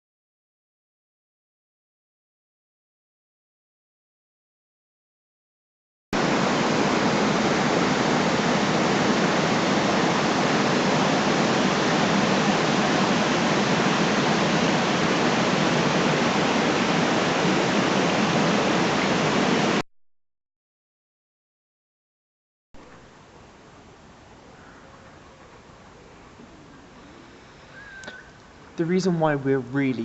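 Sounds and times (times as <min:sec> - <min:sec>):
loud steady rushing noise: 0:06.2 - 0:19.8.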